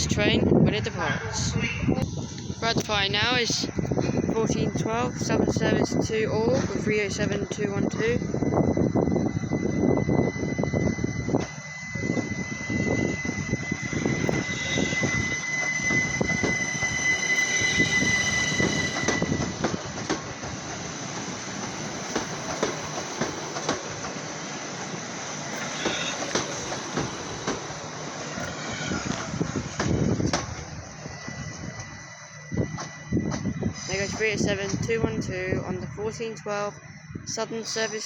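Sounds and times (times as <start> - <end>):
high steady tone: 2.0 - 24.0
wheel squeal: 9.2 - 20.1, 25.2 - 34.4
train wheels clicking over rail joints: 14.0 - 32.0.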